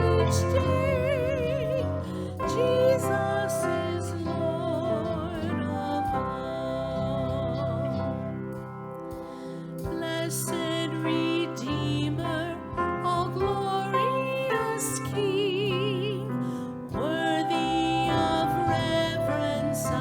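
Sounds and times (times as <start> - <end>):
choir singing worship song: 0.0 - 8.5, 17.0 - 20.0.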